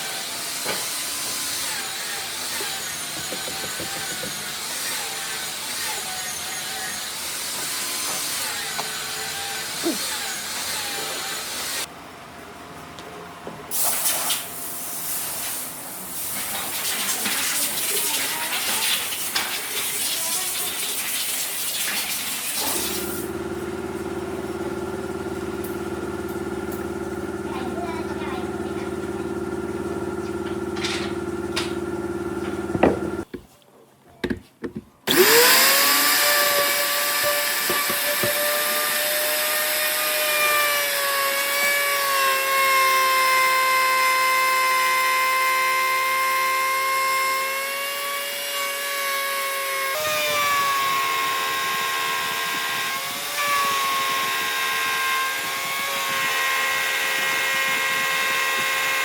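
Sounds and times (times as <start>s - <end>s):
power tool whining on wood: 0.0s - 11.9s, 35.1s - 59.0s.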